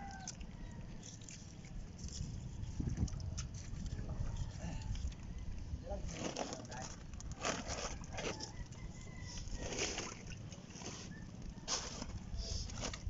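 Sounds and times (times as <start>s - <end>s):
stick scraping reef rocks: 6.0s - 8.6s, 9.3s - 13.0s.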